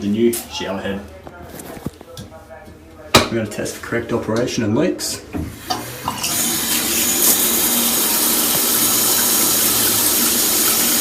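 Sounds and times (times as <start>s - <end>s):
water spraying from shower head: 6.2s - 11.0s.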